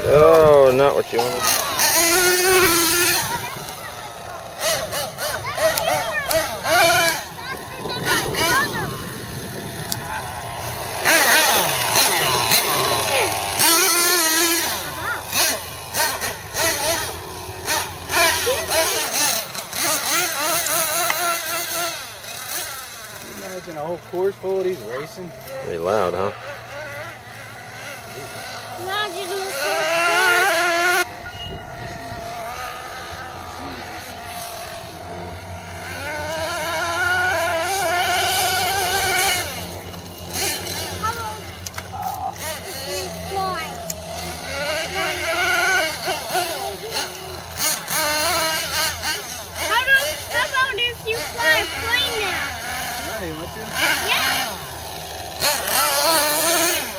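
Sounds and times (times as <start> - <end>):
model truck nitro engine revving: 0.0 - 56.9.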